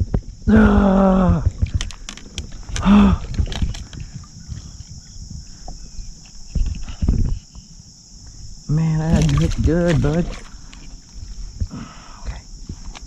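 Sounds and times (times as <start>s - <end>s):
high buzz of insects: 0.0s - 13.0s
person grunting with effort: 0.5s - 1.5s, 2.8s - 3.3s.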